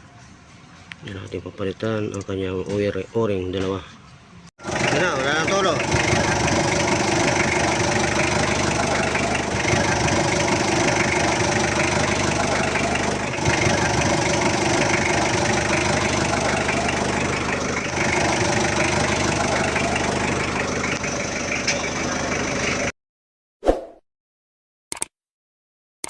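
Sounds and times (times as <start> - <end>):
diesel engine idling: 4.6 - 22.9.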